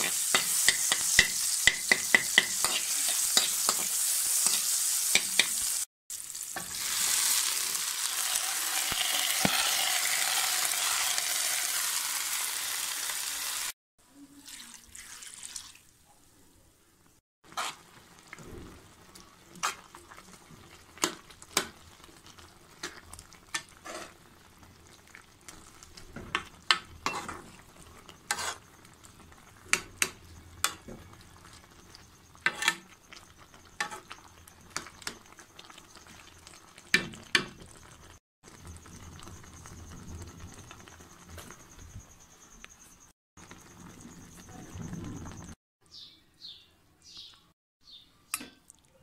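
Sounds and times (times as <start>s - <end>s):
spoon scraping cooking pot: 0.0s - 5.6s, 17.5s - 17.8s, 23.5s - 24.2s, 26.3s - 28.7s, 32.4s - 35.1s
food sizzling: 0.0s - 13.8s, 17.4s - 41.9s, 43.4s - 45.6s.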